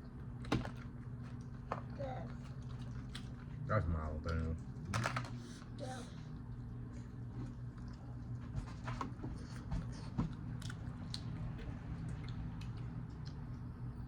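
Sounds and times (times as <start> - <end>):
steady low hum: 0.0 - 14.0
chewing and biting food: 2.4 - 4.9, 6.4 - 14.0.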